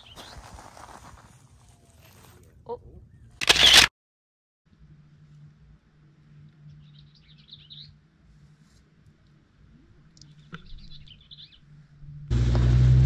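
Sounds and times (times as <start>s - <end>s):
low steady hum: 4.7s - 13.0s.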